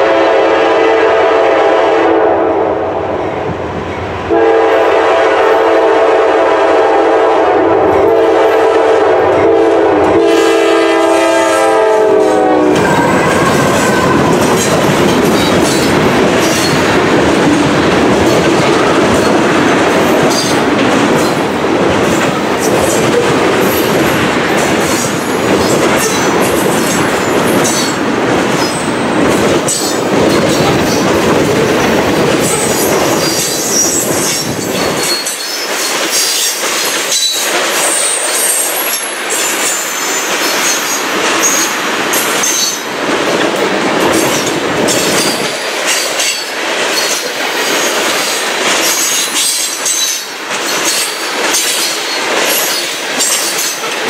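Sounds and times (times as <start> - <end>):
locomotive horn: 0.0 - 3.3, 4.3 - 14.6
train cars rumbling: 0.0 - 54.0
wheels clacking over rail joints: 12.8 - 54.0.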